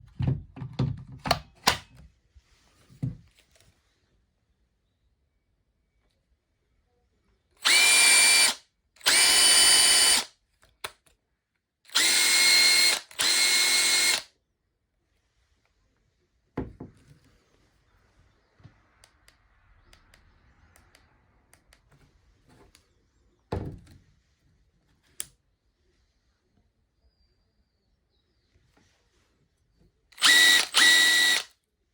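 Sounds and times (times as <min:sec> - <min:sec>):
impact driver motor whining: 0:07.6 - 0:10.3, 0:11.9 - 0:14.2, 0:30.2 - 0:31.5.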